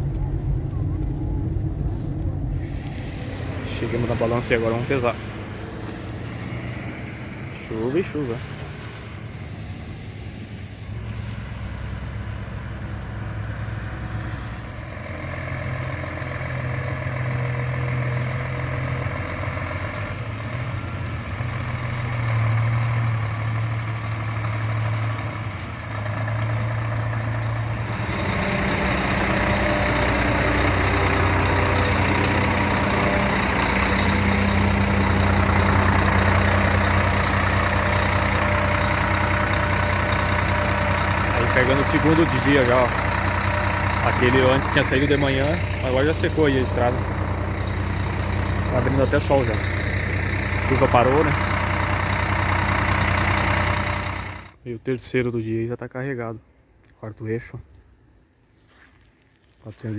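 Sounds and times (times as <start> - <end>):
diesel truck engine running: 0.0 - 54.6
strong hiss: 2.6 - 4.6.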